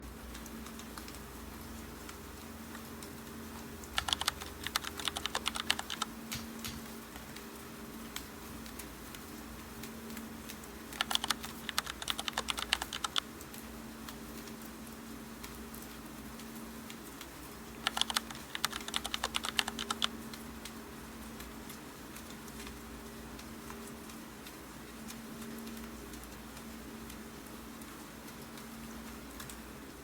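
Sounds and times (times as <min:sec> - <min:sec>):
rain hissing: 0:00.0 - 0:30.0
keyboard typing: 0:03.8 - 0:07.4, 0:10.9 - 0:13.5, 0:17.7 - 0:20.2.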